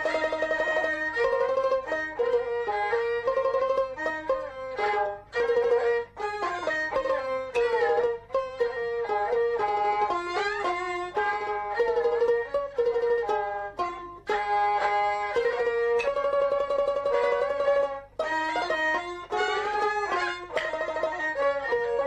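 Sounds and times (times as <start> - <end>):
high-pitched fiddle melody: 0.0 - 22.0
plucked strings: 0.0 - 22.0.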